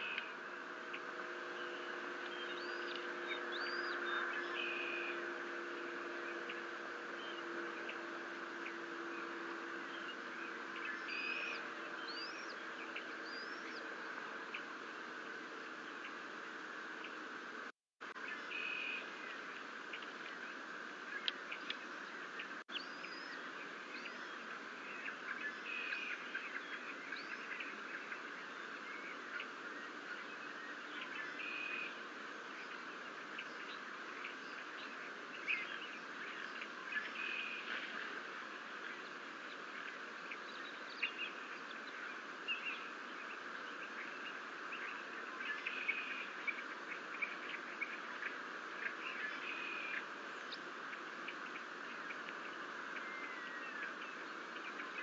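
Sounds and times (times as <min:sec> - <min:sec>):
steady outdoor hiss: 0:00.0 - 0:55.0.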